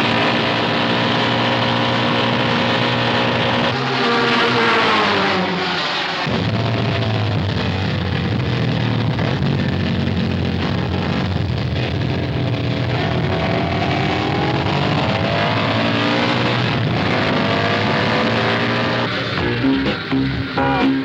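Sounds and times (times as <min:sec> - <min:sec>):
racing motorcycle engines passing: 0:00.0 - 0:11.3, 0:12.2 - 0:21.0
guitar music: 0:19.3 - 0:21.0.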